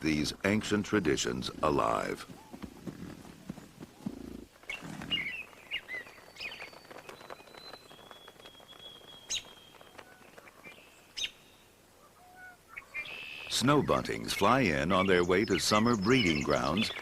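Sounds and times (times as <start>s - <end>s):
wild birds calling: 1.0s - 17.0s.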